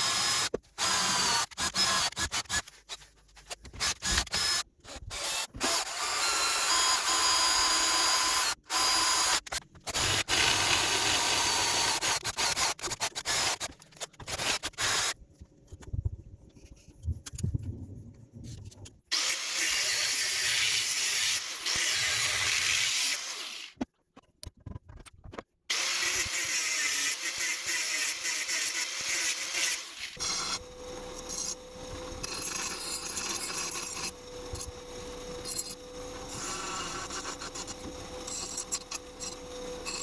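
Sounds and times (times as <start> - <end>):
power tool cutting metal: 3.9 - 13.7, 19.1 - 23.7, 25.7 - 40.0.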